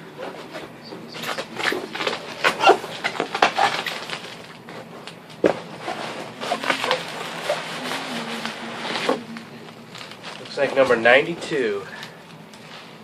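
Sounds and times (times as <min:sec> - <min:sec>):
packaging rustling and tearing: 0:01.2 - 0:13.0.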